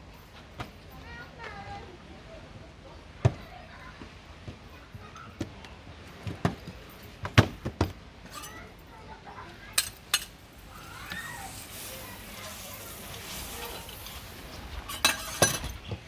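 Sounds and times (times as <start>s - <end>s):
cooking utensils clacking: 8.3s - 8.9s, 9.6s - 16.0s.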